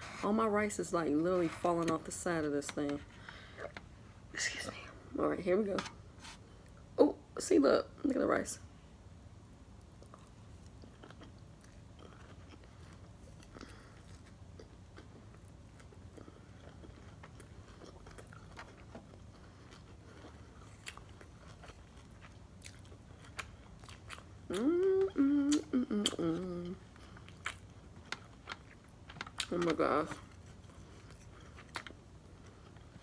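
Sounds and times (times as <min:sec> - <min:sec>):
person humming mmm: 0:24.5 - 0:26.8.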